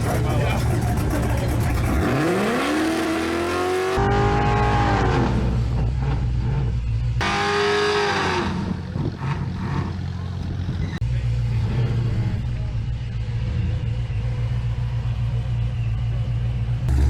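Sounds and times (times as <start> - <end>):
drag race engines at full throttle: 0.0 - 17.0.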